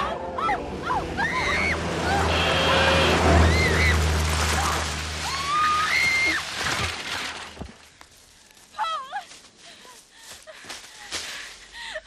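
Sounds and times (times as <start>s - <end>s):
car engine droning: 0.0s - 6.0s.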